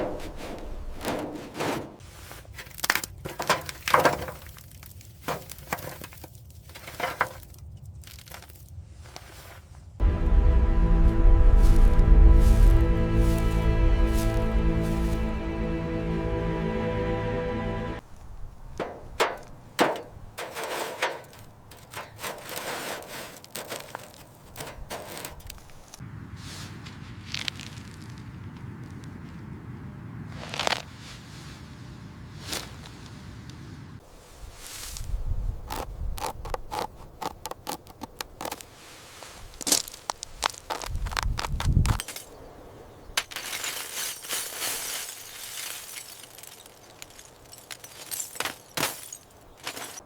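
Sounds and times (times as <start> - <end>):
scraping and rubbing: 0.0 - 4.4, 18.8 - 26.0
background music: 10.0 - 18.0.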